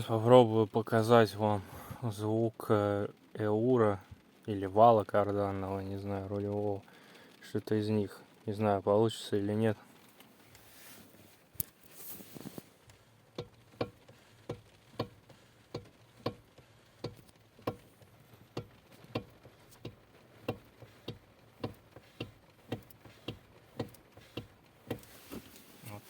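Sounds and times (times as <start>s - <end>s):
steering knocking clunks: 13.3s - 25.5s.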